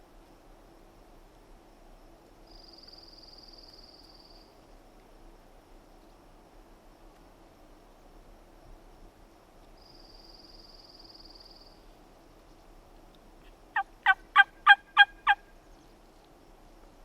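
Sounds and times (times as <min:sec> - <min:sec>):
faint high-pitched buzz: 0:00.0 - 0:13.7
turkey yelps: 0:13.8 - 0:15.4.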